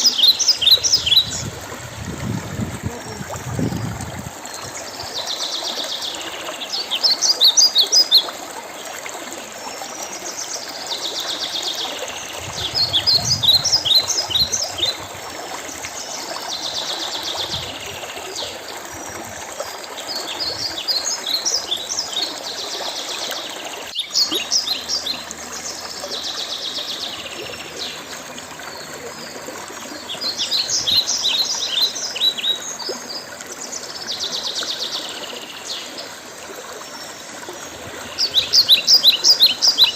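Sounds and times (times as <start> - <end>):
songbird singing: 0.0 - 2.0, 11.0 - 15.2, 23.6 - 36.1, 36.9 - 39.9
stream running: 0.0 - 39.9.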